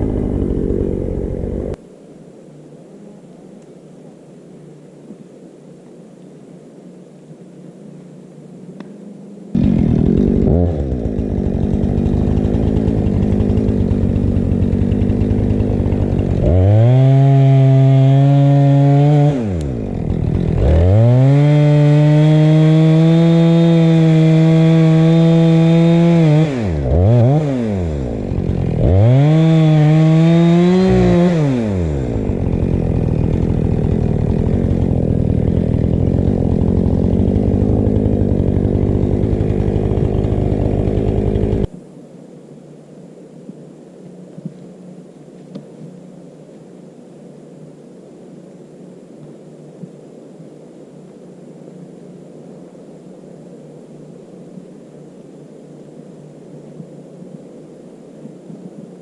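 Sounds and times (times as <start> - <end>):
chainsaw engine idling and revving: 0.0 - 1.8, 9.6 - 41.7.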